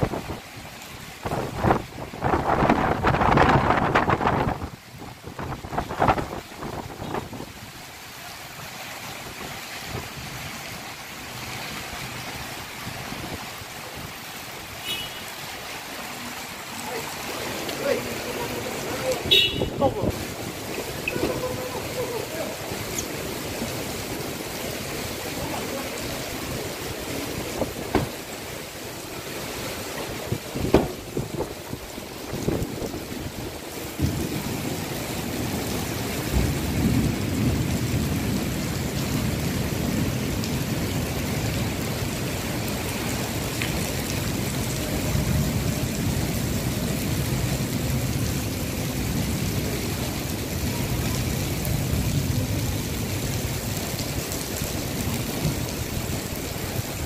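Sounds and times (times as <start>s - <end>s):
strong wind: 0.0s - 7.7s, 19.2s - 22.4s, 26.3s - 28.3s, 30.0s - 57.0s
heavy rain: 0.0s - 57.0s
sharp knocks: 30.7s - 31.0s.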